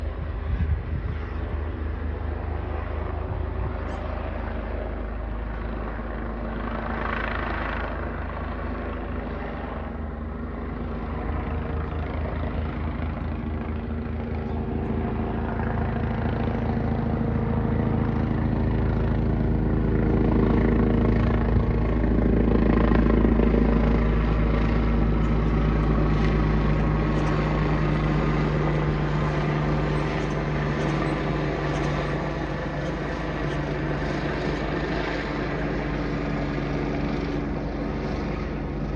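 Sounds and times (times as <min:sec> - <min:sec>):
helicopter rotor chop and drone: 0:00.0 - 0:38.9.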